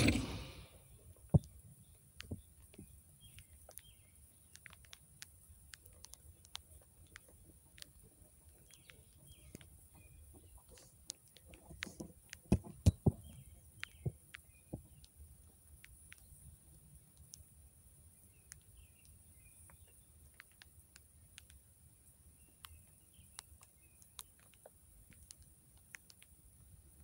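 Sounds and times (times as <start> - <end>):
small birds chirping: 0.0 - 27.0
light ticks: 1.1 - 17.5, 18.1 - 21.7, 22.4 - 26.7.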